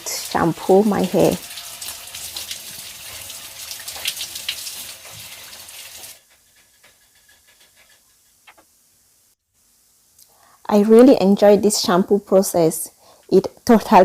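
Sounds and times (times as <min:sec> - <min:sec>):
water splashes: 0:00.0 - 0:06.2
shower water running: 0:00.0 - 0:07.9.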